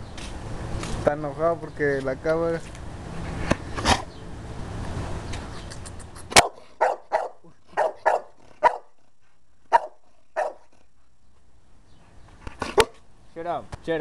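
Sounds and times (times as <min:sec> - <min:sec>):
dog barking: 0:06.4 - 0:09.0, 0:09.7 - 0:10.7.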